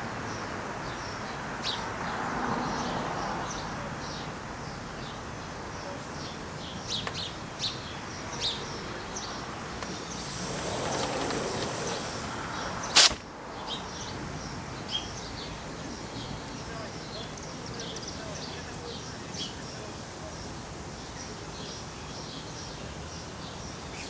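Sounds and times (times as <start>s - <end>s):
small birds chirping: 0.2s - 24.0s
sharp crack: 10.2s - 13.3s.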